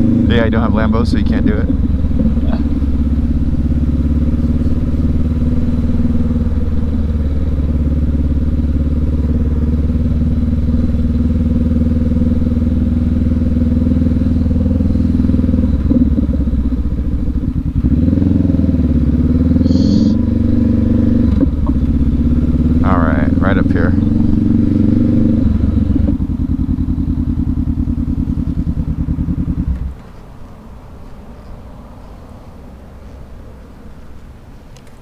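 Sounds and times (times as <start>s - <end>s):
motorcycle engine idling and revving: 0.0s - 35.0s
high-pitched tone: 19.6s - 20.2s.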